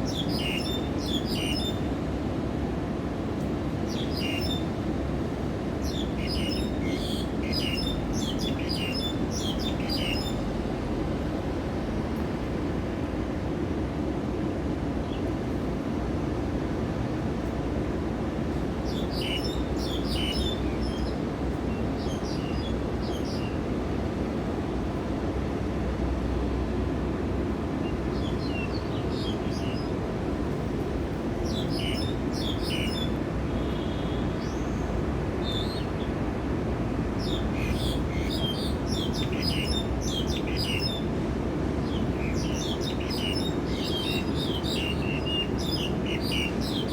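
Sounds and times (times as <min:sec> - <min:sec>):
small birds chirping: 0:31.4 - 0:34.8, 0:37.2 - 0:41.1, 0:41.8 - 0:46.9.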